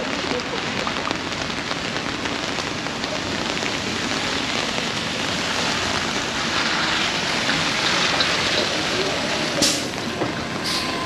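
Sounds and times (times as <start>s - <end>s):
bus on wet road: 0.0s - 11.0s
rain on wet pavement: 0.0s - 11.0s.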